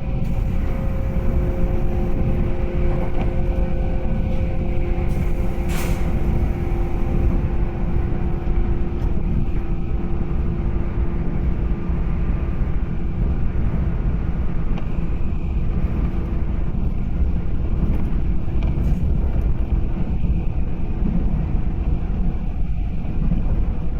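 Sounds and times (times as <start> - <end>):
train motor whine: 0.0 - 9.9
train wheels rumbling on rails: 0.0 - 23.9.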